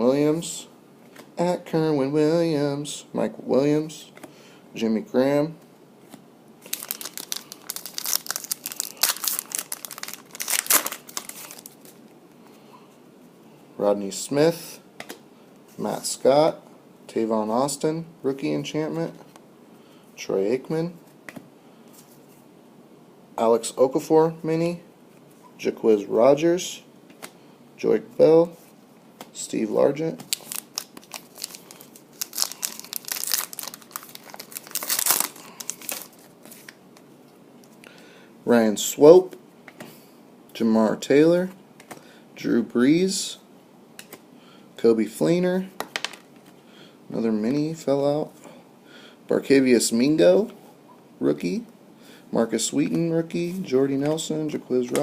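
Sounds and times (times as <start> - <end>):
foil wrappers tearing and crinkling: 6.6 - 11.8, 30.3 - 36.7.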